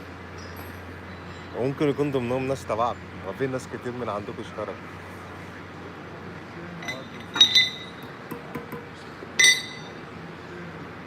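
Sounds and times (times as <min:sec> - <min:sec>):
hard objects clinking together: 0:06.8 - 0:08.8, 0:09.4 - 0:10.0.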